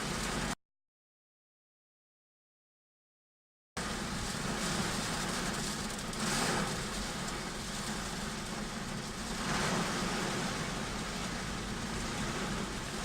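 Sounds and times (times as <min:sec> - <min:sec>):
heavy rain pouring: 0:00.0 - 0:00.6, 0:03.8 - 0:13.0.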